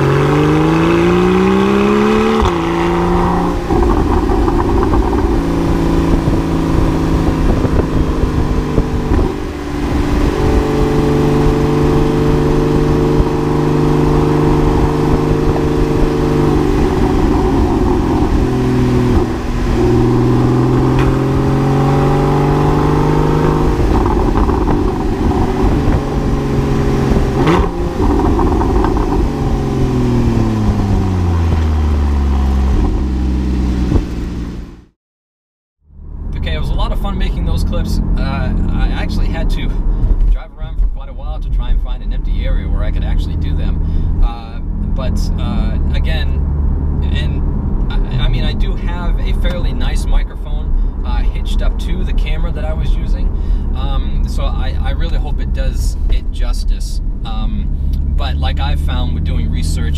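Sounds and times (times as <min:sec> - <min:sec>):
car engine revving through gears: 0:00.0 - 0:34.9.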